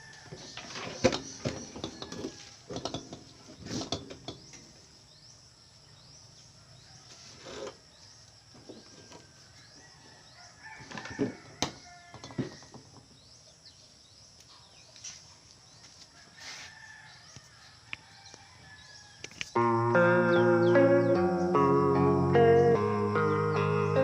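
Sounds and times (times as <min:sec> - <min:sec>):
irregular knocks and clatter: 0:00.3 - 0:04.7.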